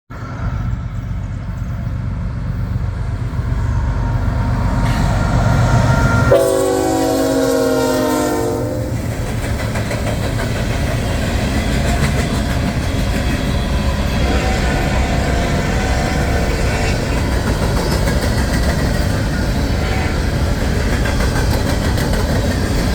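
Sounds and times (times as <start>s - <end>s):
train rumbling by: 0.1s - 22.9s
locomotive air horn: 4.9s - 9.1s, 14.0s - 17.4s, 19.6s - 20.6s.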